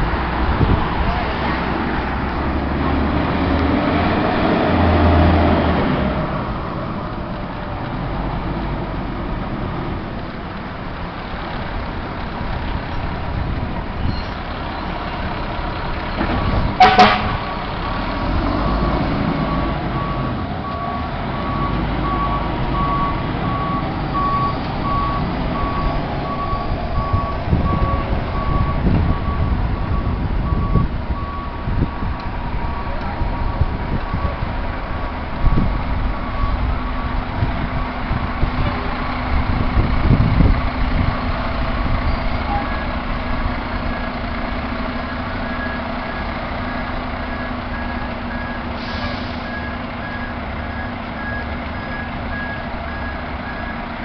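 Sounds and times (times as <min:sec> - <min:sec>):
diesel engines running: 0:00.0 - 0:54.0
loud horn blast: 0:16.8 - 0:17.5
reversing alarm beeping: 0:18.6 - 0:32.1, 0:45.0 - 0:53.8.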